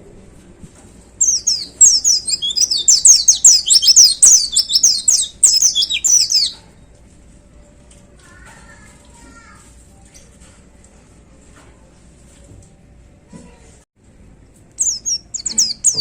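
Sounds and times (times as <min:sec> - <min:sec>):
bird singing fast high notes: 0:01.2 - 0:06.6, 0:14.8 - 0:16.0.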